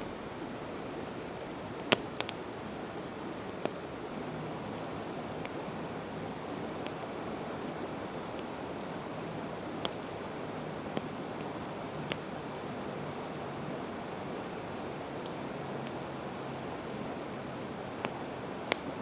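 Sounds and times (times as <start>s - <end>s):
river rushing: 3.0s - 15.0s
campfire crackling and popping: 3.6s - 12.2s, 18.0s - 19.0s
high even chirping: 4.4s - 11.2s.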